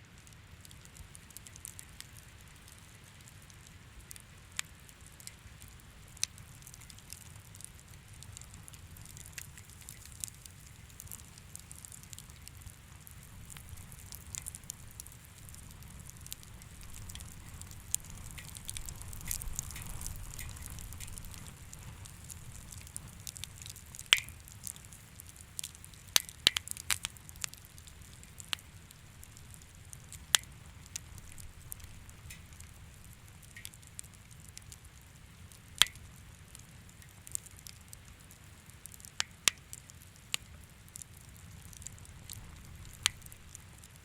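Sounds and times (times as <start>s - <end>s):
wood fire crackling: 0.1s - 44.0s
low steady rumble: 5.4s - 26.0s.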